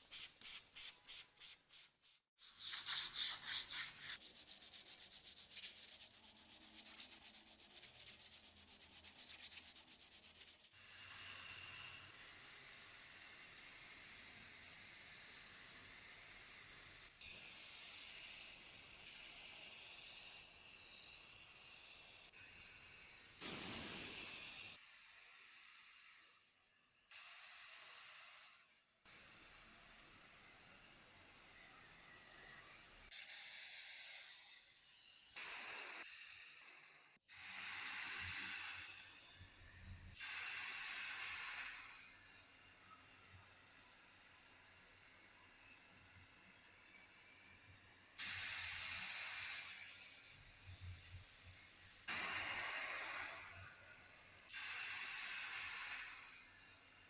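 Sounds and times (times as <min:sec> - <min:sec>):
hissing spray bursts: 0:23.4 - 0:24.6.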